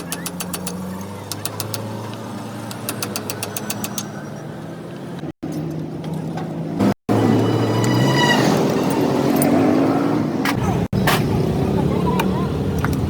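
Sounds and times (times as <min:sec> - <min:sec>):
rapid clicks: 0:00.0 - 0:01.9.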